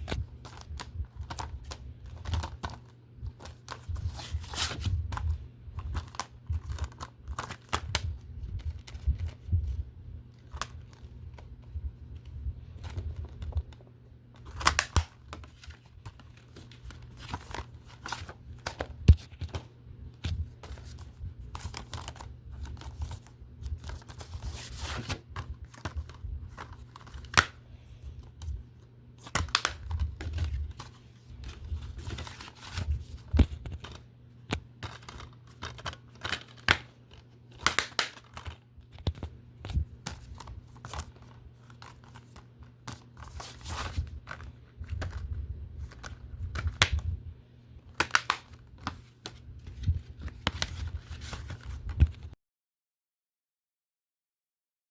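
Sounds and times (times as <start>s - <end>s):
plastic cases clicking and rustling: 29.2s - 47.0s.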